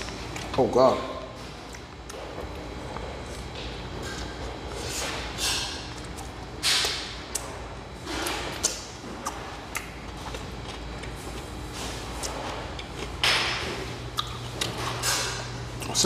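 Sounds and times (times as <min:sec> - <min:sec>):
room noise: 0:00.0 - 0:16.0
man chewing food: 0:01.4 - 0:16.0
wet mouth clicks: 0:08.6 - 0:11.2, 0:14.1 - 0:14.7.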